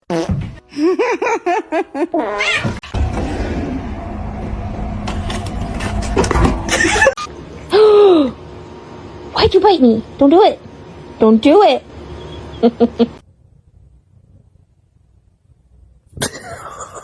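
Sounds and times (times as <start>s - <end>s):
low rumble: 2.8s - 7.1s.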